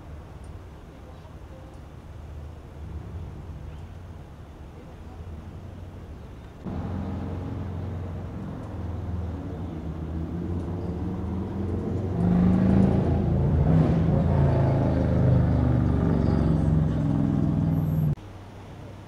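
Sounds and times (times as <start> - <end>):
car engine idling: 0.0 - 10.4.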